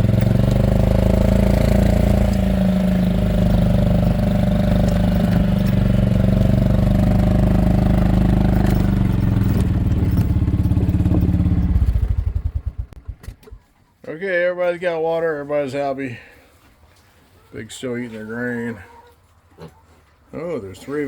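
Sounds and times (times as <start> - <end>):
small farm vehicle engine running: 0.0 - 13.7.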